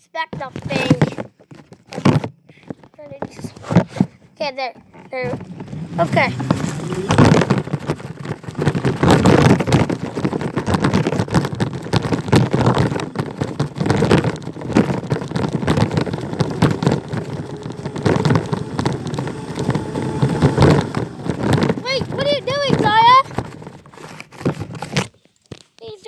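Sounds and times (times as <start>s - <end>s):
wheels rumbling and rattling: 0.0s - 25.1s
wind buffeting microphone: 4.8s - 24.1s.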